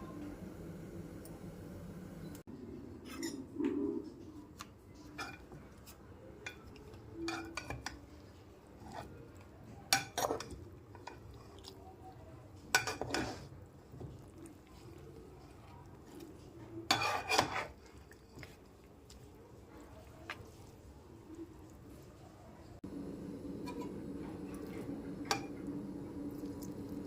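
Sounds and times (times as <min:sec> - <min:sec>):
metal utensils clinking on pots: 0:12.7 - 0:13.5, 0:23.6 - 0:25.7.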